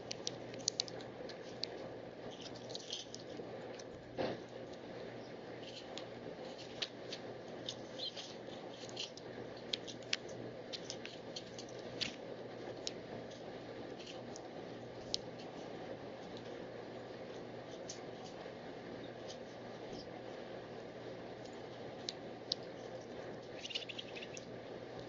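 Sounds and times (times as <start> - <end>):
steady low hum: 0.0 - 25.0
birds chipping: 7.5 - 11.8, 22.5 - 24.6.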